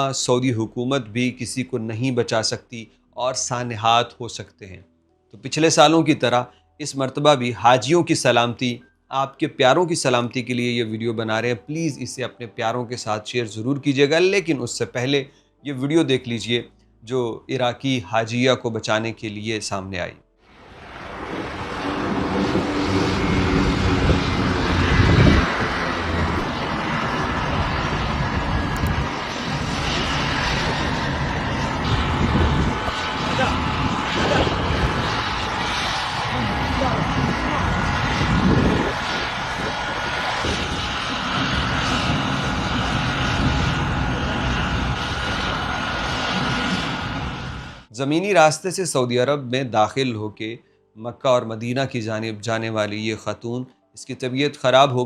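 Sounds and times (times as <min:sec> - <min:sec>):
helicopter drone: 0:20.5 - 0:47.9.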